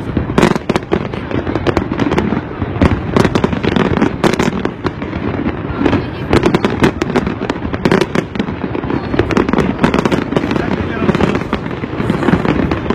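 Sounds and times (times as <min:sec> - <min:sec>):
crowd hubbub: 0:00.0 - 0:12.9
fireworks bangs and crackles: 0:00.0 - 0:12.9.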